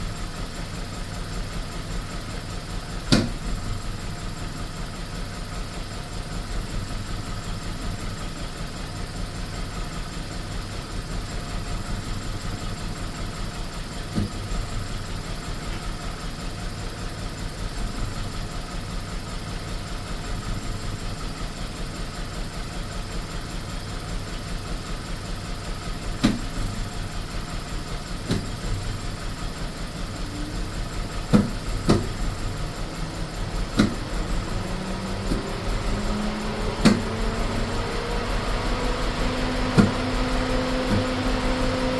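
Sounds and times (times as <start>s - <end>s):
car engine idling roughly: 0.0s - 41.9s
engine misfire knocks: 3.0s - 3.8s, 14.1s - 14.9s, 26.1s - 41.9s.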